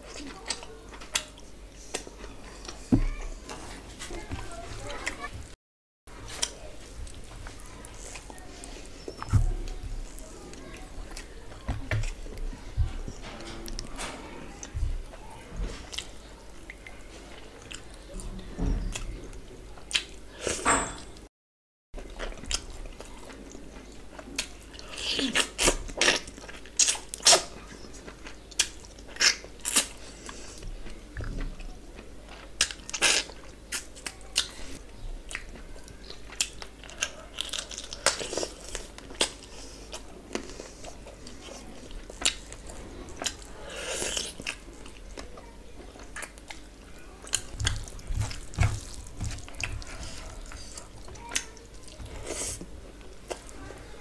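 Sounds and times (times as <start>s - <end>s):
person chewing food: 15.8s - 18.0s, 18.9s - 20.6s, 22.0s - 53.6s
wet smacking: 47.3s - 51.5s.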